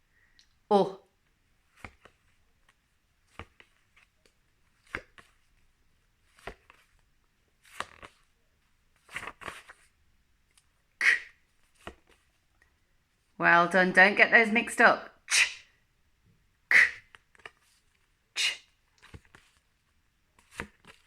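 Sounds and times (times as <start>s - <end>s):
paper flashcards flipping: 1.6s - 10.0s, 11.6s - 12.4s, 17.0s - 18.1s, 18.8s - 21.0s.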